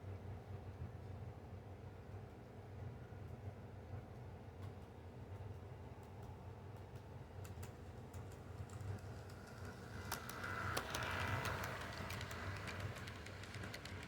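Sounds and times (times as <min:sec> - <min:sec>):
clicking of train on track: 0:04.1 - 0:14.0
toy train motor hum: 0:08.6 - 0:14.0.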